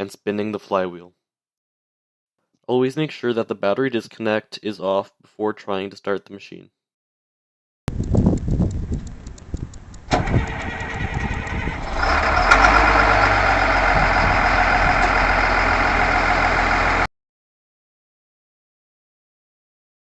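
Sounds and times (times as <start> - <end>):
diesel engine starting: 10.0 - 17.1.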